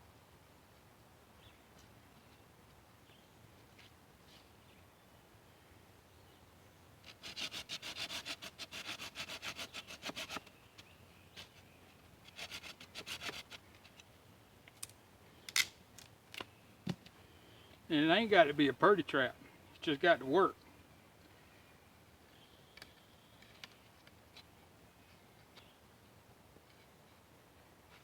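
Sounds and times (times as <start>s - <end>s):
hand saw cutting wood: 7.0s - 10.5s, 12.3s - 13.6s.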